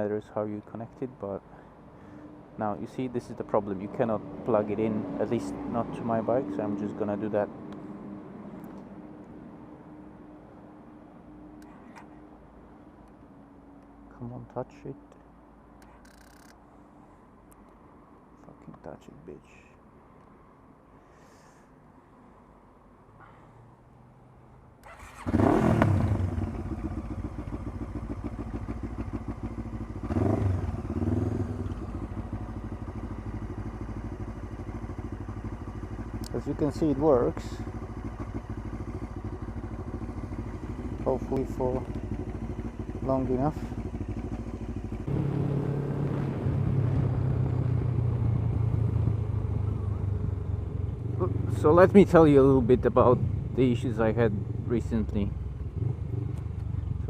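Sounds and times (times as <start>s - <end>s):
motorcycle engine revving: 24.8s - 57.0s
motorcycle engine starting and idling: 24.8s - 57.0s.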